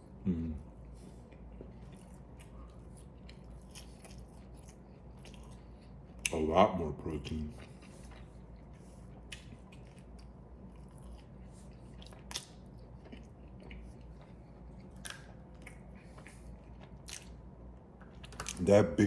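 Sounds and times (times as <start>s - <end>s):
chewing food: 0.6s - 18.7s.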